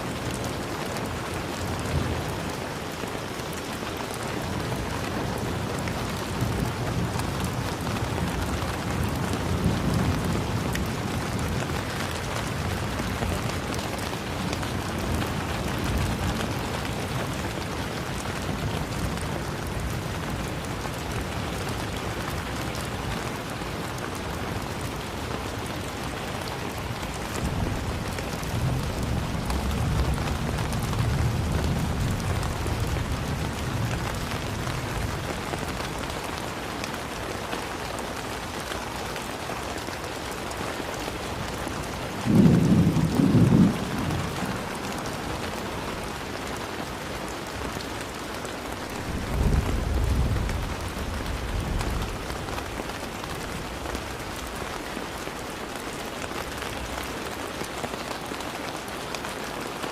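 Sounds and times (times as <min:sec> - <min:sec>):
rain hissing: 0:41.3 - 0:58.4
thunder rumbling: 0:42.2 - 0:46.0, 0:48.8 - 0:54.8.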